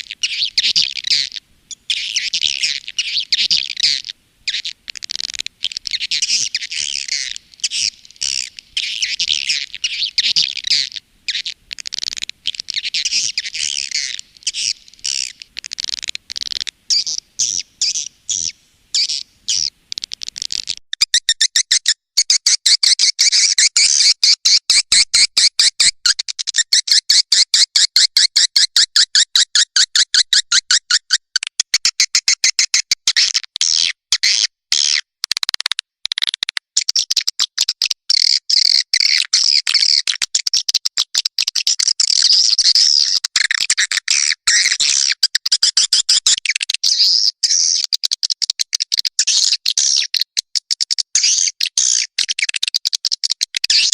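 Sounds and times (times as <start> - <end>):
high twittering bird chirps: 0.0 - 22.4.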